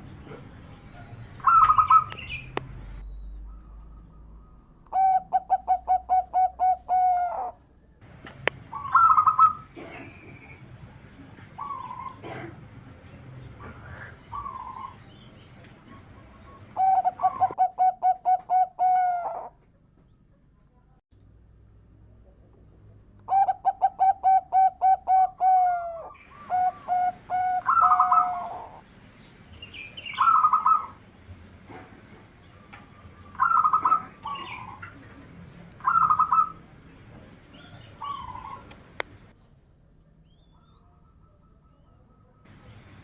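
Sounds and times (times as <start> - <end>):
dove cooing: 0.2 - 2.4, 4.9 - 7.6, 8.4 - 10.6, 11.5 - 12.8, 13.6 - 15.0, 15.8 - 19.6, 23.3 - 28.8, 30.1 - 31.0, 32.6 - 35.1, 35.8 - 36.7, 37.5 - 39.3.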